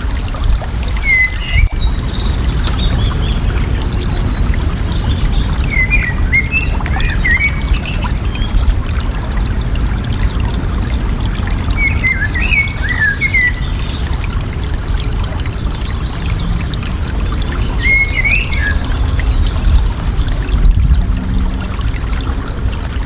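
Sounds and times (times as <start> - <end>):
songbirds whistling: 0.0 - 8.5, 11.8 - 14.0, 17.6 - 19.7
water flowing and trickling: 0.0 - 23.0.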